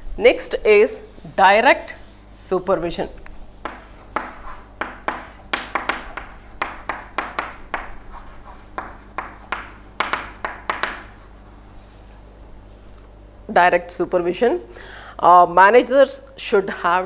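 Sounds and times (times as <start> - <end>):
pen scratching on paper: 3.6 - 11.6.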